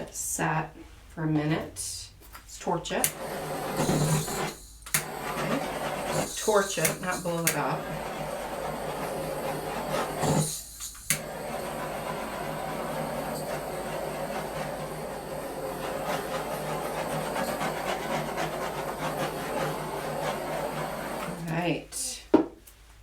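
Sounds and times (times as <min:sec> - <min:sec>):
torch hissing: 0:03.0 - 0:21.5
igniter sharp click: 0:04.8 - 0:05.1.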